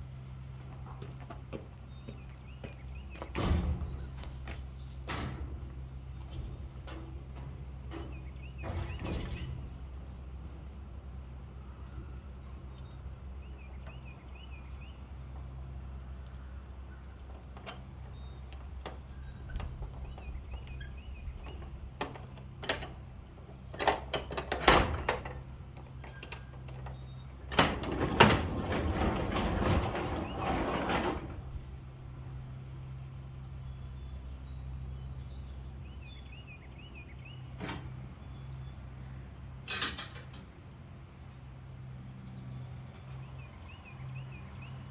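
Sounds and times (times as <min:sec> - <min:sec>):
knocks and clanks: 0:21.4 - 0:31.8
loud rattling sliding sound: 0:27.5 - 0:32.0.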